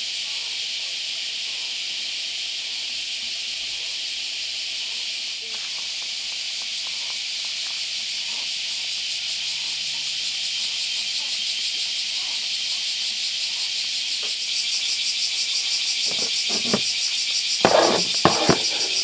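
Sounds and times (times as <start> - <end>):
cicadas buzzing: 14.6 - 19.0.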